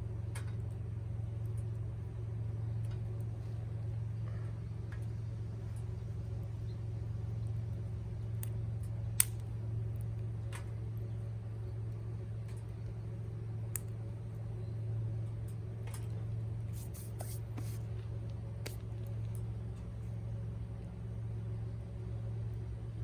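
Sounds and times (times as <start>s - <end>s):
steady low hum: 0.0s - 23.0s
campfire crackling: 7.3s - 14.4s
sharp pops of fire: 8.4s - 9.6s.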